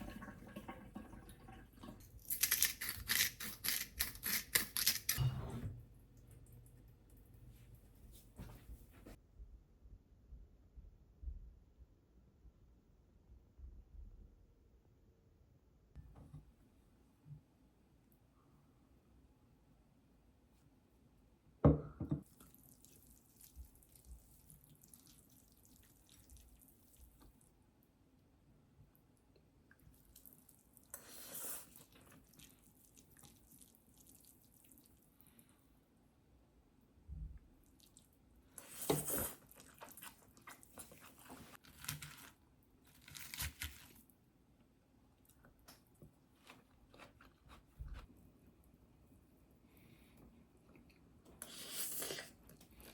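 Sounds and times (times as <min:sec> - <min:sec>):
crunching and crinkling handling: 0:39.4 - 0:44.1.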